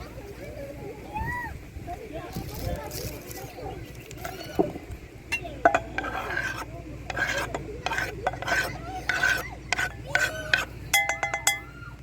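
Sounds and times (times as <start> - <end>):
spoon stirring in a bowl: 2.4 - 11.7.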